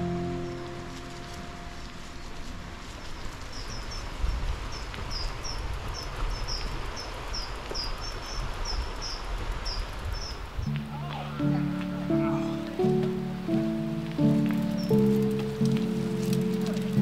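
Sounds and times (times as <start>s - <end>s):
small bird chirping: 0.2s - 10.8s.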